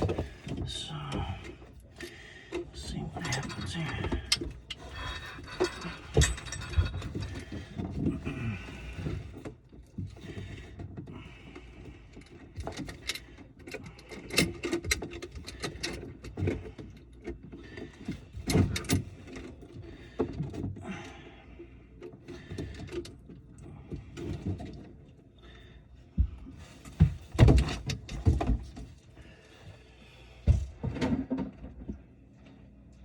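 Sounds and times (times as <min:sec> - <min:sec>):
tools clicking and rattling: 0:00.0 - 0:08.1, 0:12.1 - 0:20.6.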